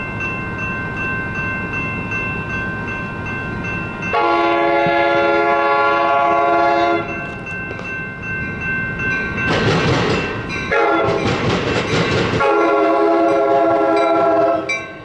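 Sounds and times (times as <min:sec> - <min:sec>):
locomotive horn blast: 0:04.2 - 0:07.1, 0:10.7 - 0:11.2, 0:12.4 - 0:14.8.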